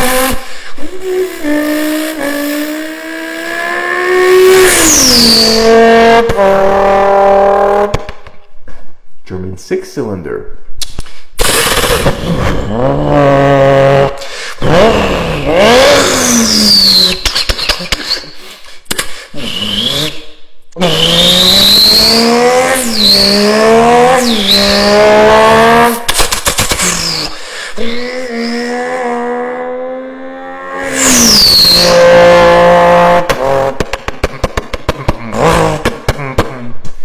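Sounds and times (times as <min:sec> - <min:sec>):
engine revving and accelerating: 0:00.0 - 0:08.0, 0:11.7 - 0:17.2, 0:19.4 - 0:20.2, 0:20.8 - 0:34.4, 0:35.2 - 0:36.0
sharp crackling: 0:11.4 - 0:12.4.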